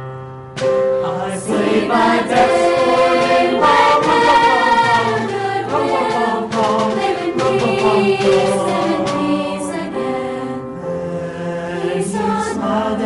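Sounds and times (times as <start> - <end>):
vocal ensemble singing in harmony: 0.9 - 13.0.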